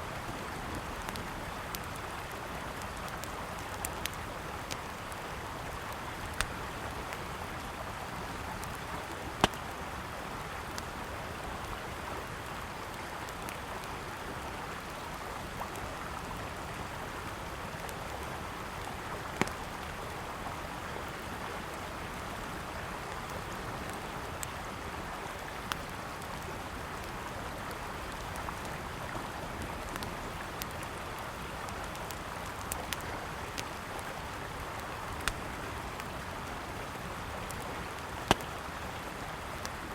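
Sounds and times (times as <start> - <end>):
campfire crackling and popping: 0.2 - 14.8, 16.9 - 21.7, 23.2 - 39.9.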